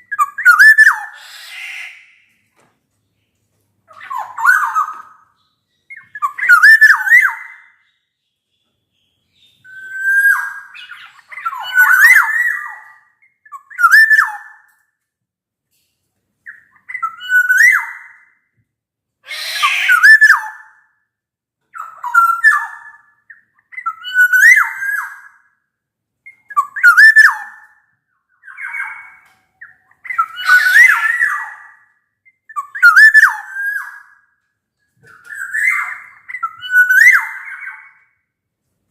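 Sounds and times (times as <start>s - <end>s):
bird whistling song: 0.0s - 2.4s, 3.9s - 14.9s, 16.4s - 18.6s, 19.3s - 21.0s, 21.7s - 25.6s, 26.2s - 38.3s
harsh rasping bird call: 0.2s - 2.3s, 19.2s - 20.4s.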